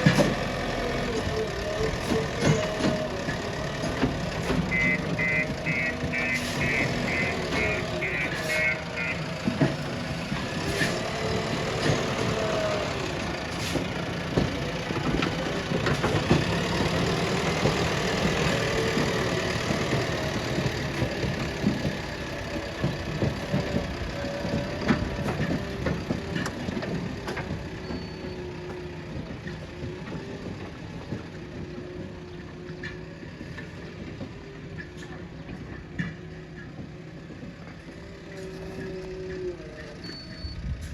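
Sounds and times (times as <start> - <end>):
metal knocks and clanks: 0.0 - 8.6
diesel engine running: 0.0 - 40.9
reversing alarm beeping: 0.9 - 10.2, 40.0 - 40.8.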